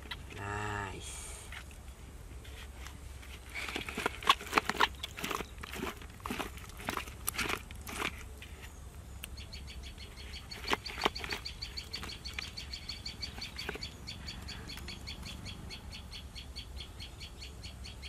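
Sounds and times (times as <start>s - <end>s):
bird chirping rapidly: 9.3s - 18.0s.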